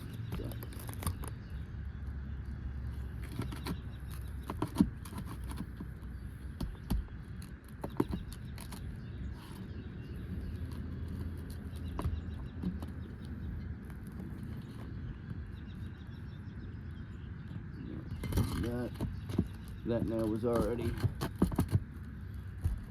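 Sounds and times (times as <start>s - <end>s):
tool prying nails from shingles: 18.3s - 21.9s.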